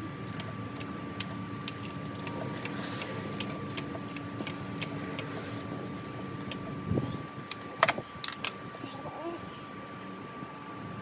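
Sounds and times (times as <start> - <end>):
faint hum: 0.0 - 11.0
hand ratchet clicking: 1.6 - 6.6.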